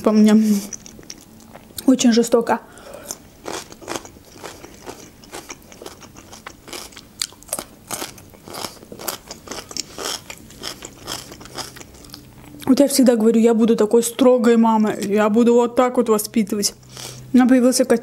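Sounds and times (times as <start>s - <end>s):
crisp chewing crunches: 3.1s - 12.7s.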